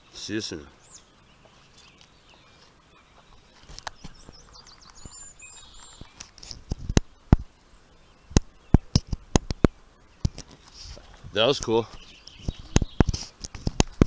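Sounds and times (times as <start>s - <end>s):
bird chirping: 0.0s - 14.0s
sharp clicks: 8.3s - 10.6s.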